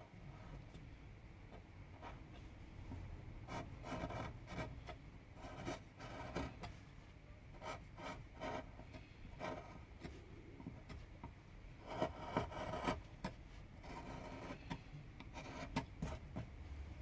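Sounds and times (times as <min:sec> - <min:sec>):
carving tool scraping wood: 0:03.5 - 0:06.7, 0:11.8 - 0:13.1, 0:13.8 - 0:16.5.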